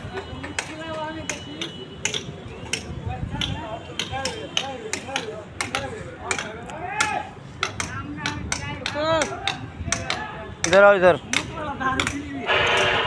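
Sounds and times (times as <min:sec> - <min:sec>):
people talking: 0:00.0 - 0:13.0.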